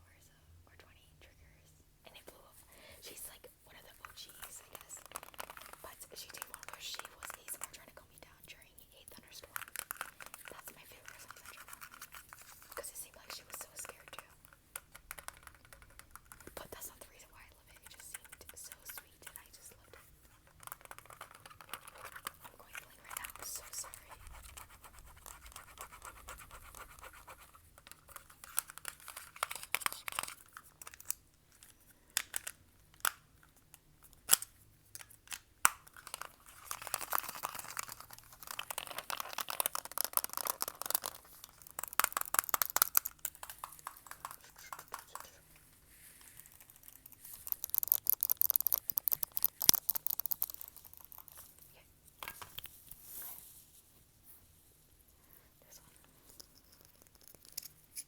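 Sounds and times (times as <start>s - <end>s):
tapping and scratching: 4.0s - 7.9s, 9.2s - 31.2s, 34.3s - 45.6s, 46.4s - 51.6s, 56.2s - 58.0s
sharp clicks: 47.0s - 51.3s.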